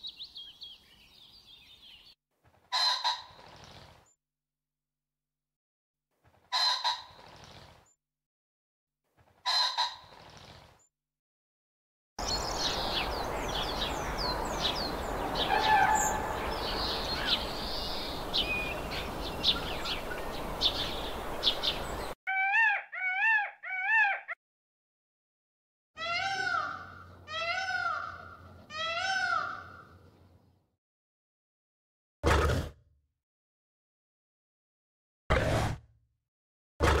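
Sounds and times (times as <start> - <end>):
small birds chirping: 0.0 - 2.2, 12.2 - 24.4
wavering bird calls: 12.2 - 24.4, 26.0 - 30.0.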